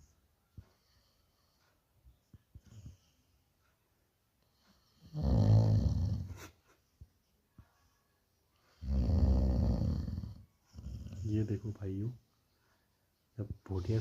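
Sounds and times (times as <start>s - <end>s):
dog snoring: 4.6s - 6.5s, 8.7s - 11.6s.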